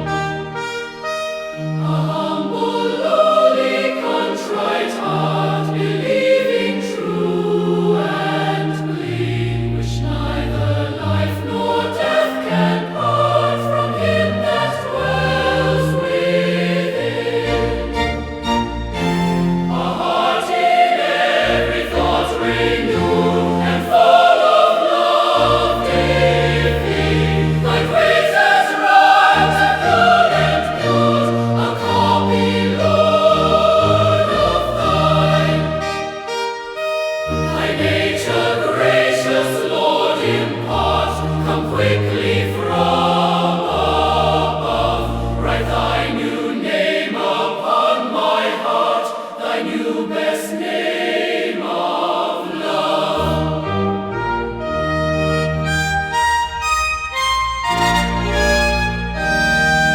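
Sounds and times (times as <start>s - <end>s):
choir singing a hymn: 0.0s - 56.3s, 57.2s - 59.9s
sustained bass notes: 25.4s - 28.3s, 29.2s - 36.4s, 37.3s - 39.0s, 53.2s - 59.9s.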